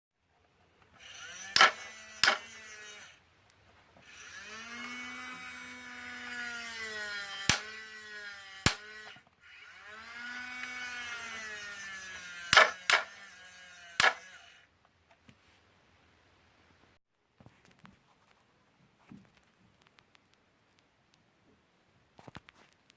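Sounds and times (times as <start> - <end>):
toy electric motor whining: 0.9 - 3.2, 4.0 - 14.7.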